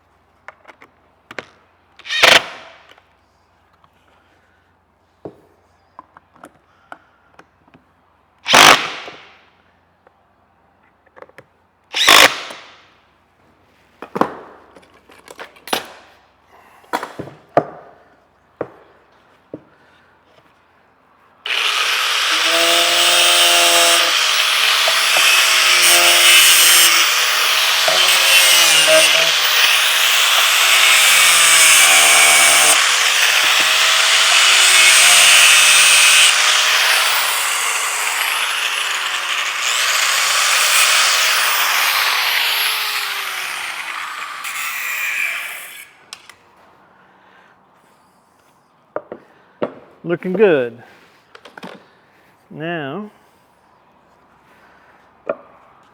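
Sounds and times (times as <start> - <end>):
power tool running under load: 21.5 - 45.9.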